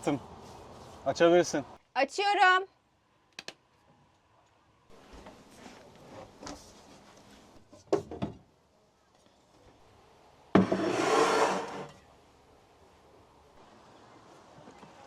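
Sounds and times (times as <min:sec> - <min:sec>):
knocks and rubbing from handling: 0:10.6 - 0:11.9.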